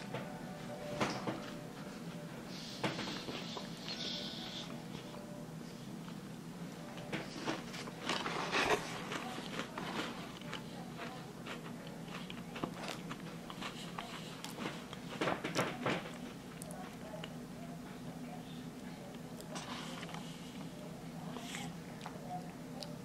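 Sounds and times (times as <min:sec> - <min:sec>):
crunching and chewing cookie: 0:07.0 - 0:18.0, 0:18.6 - 0:23.0.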